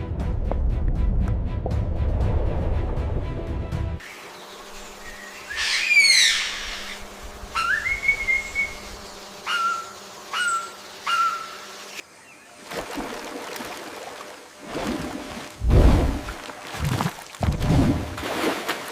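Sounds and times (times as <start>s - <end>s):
background music: 0.0s - 4.0s
whistled animal calls: 5.4s - 7.0s, 7.6s - 8.9s, 9.5s - 11.6s.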